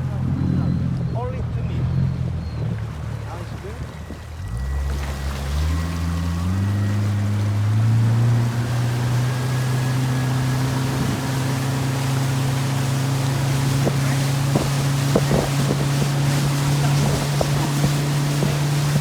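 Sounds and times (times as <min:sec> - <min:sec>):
motorboat engine droning: 0:00.0 - 0:19.0
water splashing against hull: 0:00.0 - 0:19.0.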